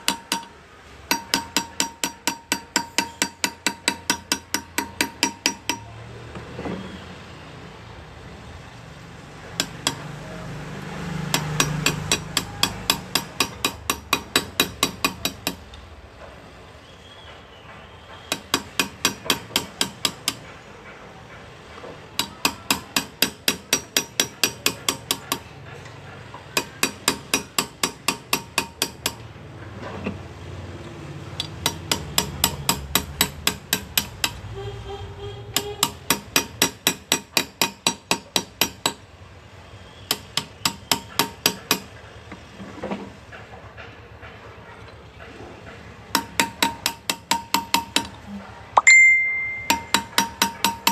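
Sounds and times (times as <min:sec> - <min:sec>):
hammer tapping chisel into metal: 0:00.0 - 0:06.0, 0:09.6 - 0:10.1, 0:11.3 - 0:15.8, 0:18.1 - 0:20.6, 0:21.8 - 0:29.3, 0:31.4 - 0:34.4, 0:35.5 - 0:39.0, 0:40.0 - 0:42.0, 0:46.1 - 0:48.2, 0:48.8 - 0:50.9.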